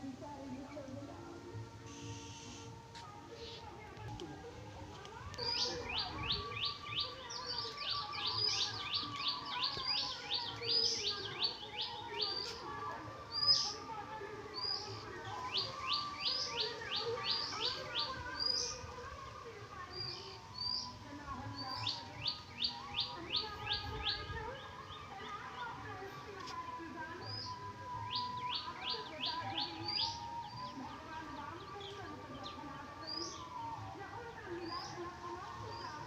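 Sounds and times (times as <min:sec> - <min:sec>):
small birds chirping: 0:01.6 - 0:33.9.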